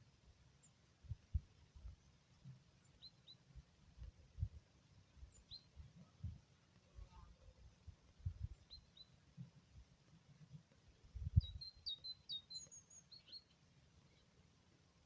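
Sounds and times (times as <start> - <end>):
faint bird chirps: 5.1 - 9.4, 10.9 - 14.4.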